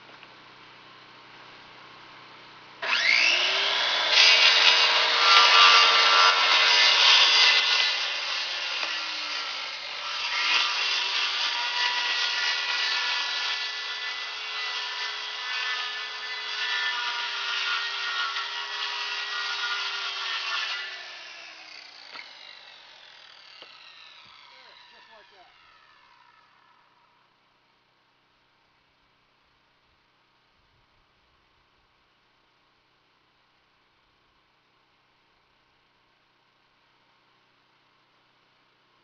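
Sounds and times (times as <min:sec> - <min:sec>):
circular saw cutting plywood: 0:02.8 - 0:27.3.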